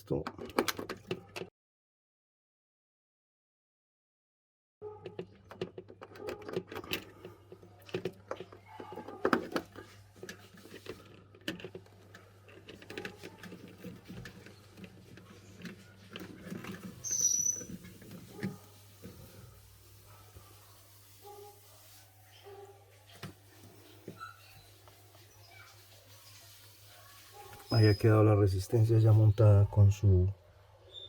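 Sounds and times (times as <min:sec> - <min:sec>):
plastic and metal parts clicking: 0:00.2 - 0:01.5, 0:05.0 - 0:17.0
high squeak: 0:17.0 - 0:17.8.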